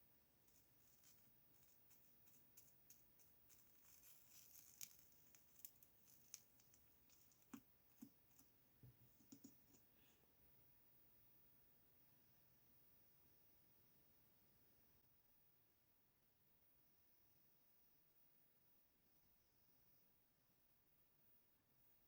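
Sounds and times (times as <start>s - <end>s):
slime clicking and crackling: 2.9s - 7.6s.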